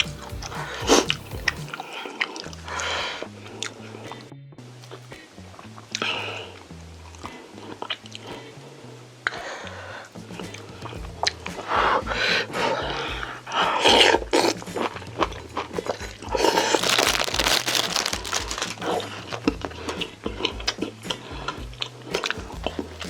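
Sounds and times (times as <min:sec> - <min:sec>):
crunchy chewing: 0:10.4 - 0:23.0.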